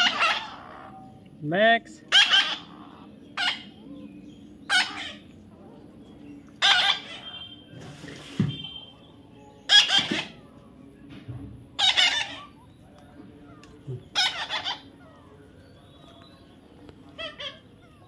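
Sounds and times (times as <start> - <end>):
parrot squawking: 0.0 - 1.2, 2.0 - 3.8, 4.7 - 5.3, 6.6 - 7.6, 9.7 - 10.4, 11.8 - 12.6, 14.0 - 15.2, 17.1 - 18.0.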